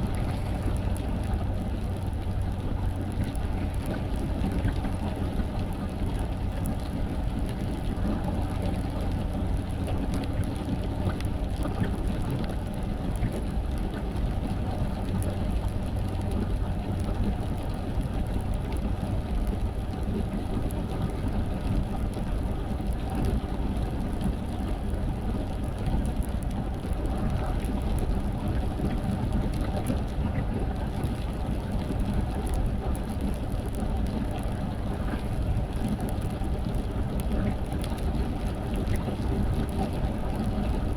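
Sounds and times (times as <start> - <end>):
car driving on wet road: 0.0 - 40.9.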